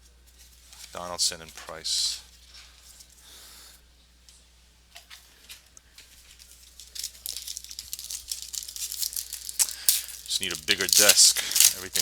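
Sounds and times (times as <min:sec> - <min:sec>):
pack wrappers crinkling: 0:05.1 - 0:12.0.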